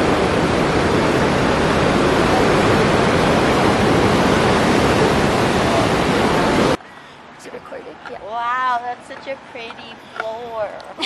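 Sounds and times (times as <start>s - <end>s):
whitewater river roaring: 0.0s - 6.8s.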